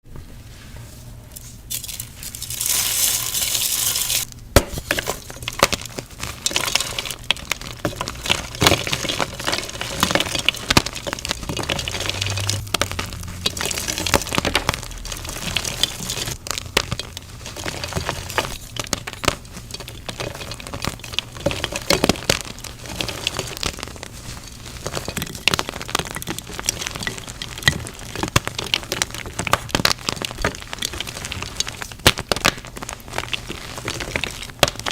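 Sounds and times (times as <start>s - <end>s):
chalk crunching and crackling: 0.5s - 34.9s.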